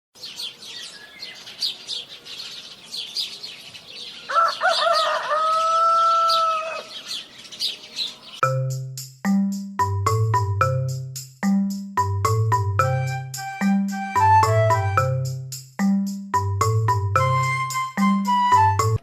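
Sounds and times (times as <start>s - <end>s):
small birds chirping: 0.2s - 8.4s
rooster crowing: 4.3s - 7.2s.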